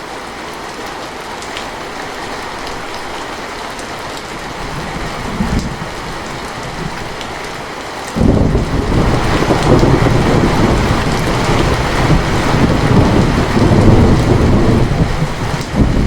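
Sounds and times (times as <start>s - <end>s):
heavy rain hissing: 0.0s - 16.0s
thunder rumbling: 4.3s - 7.5s, 8.2s - 16.0s.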